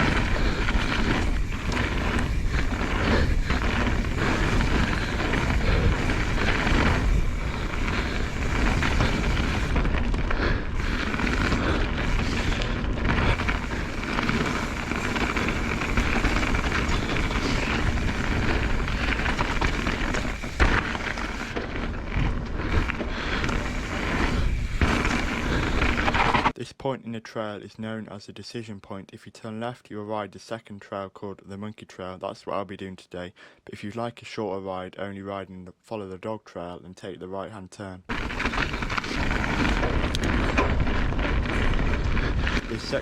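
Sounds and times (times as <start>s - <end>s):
wind rushing over microphone: 0.0s - 26.5s
bike tyres rumbling and rattling: 0.0s - 26.6s, 38.1s - 43.0s.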